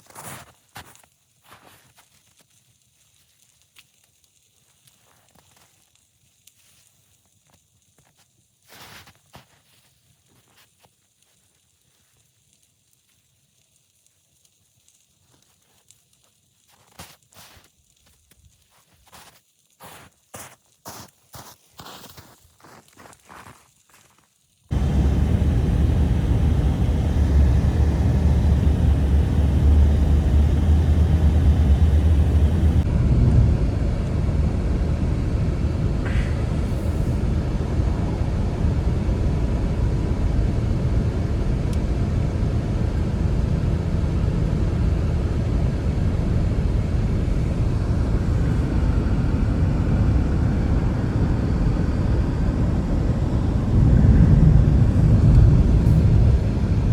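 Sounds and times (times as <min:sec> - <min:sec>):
blizzard wind blowing: 0:24.7 - 0:56.9.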